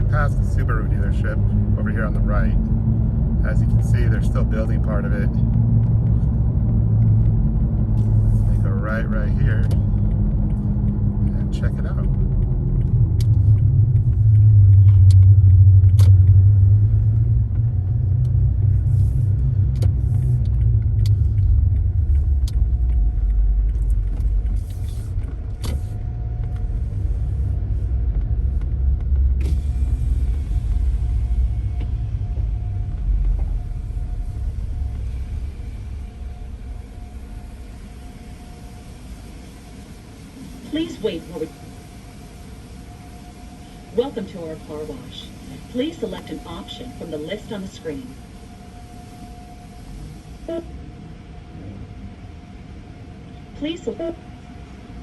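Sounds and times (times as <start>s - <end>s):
car driving slowly rumbling: 0.0s - 55.0s.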